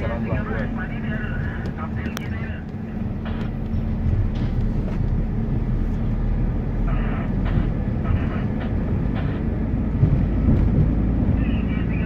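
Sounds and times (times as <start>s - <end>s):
vehicle cabin rumble: 0.0s - 12.0s.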